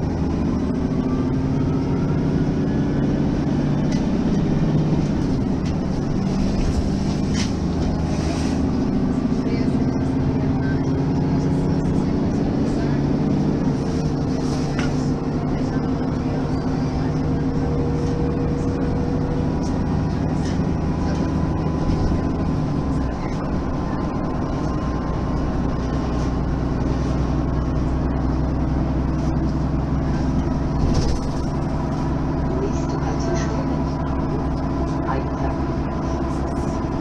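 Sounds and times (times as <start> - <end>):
bus diesel engine running: 0.0 - 37.0.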